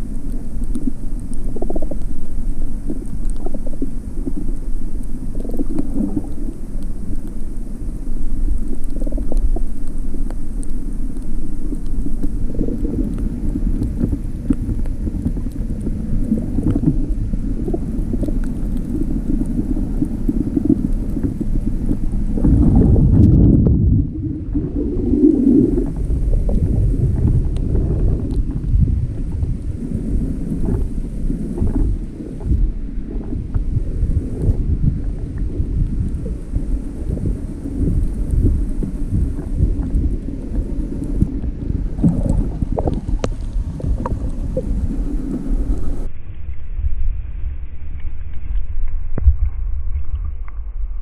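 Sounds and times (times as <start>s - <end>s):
muffled low rumbling: 0.0s - 51.0s
faint clicks: 0.1s - 22.6s, 25.2s - 28.8s.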